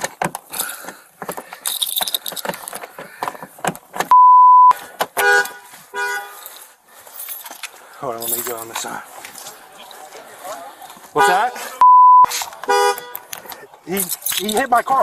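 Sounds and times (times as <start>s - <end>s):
metal gear clicking and rattling: 1.6s - 2.9s, 13.9s - 15.0s
censor bleep: 4.1s - 4.8s, 11.8s - 12.3s
car horn honks: 5.2s - 6.4s, 11.2s - 13.3s.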